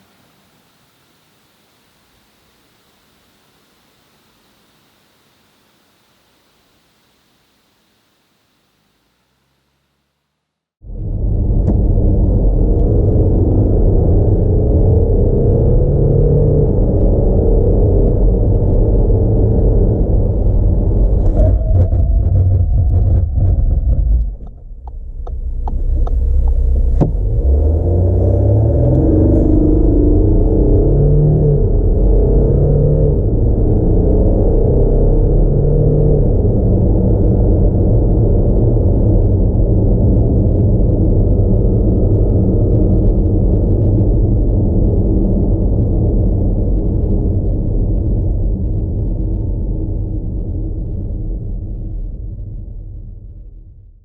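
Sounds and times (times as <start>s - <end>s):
diesel engine low hum: 0.0s - 53.3s
diesel engine rumbling: 20.2s - 33.6s.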